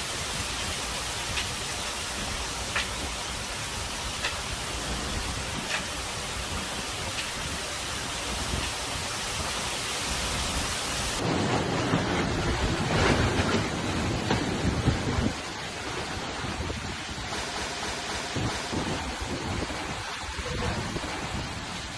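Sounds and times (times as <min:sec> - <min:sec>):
heavy rain hissing: 0:00.0 - 0:11.6, 0:13.9 - 0:21.9
low rumble of thunder: 0:11.2 - 0:17.3.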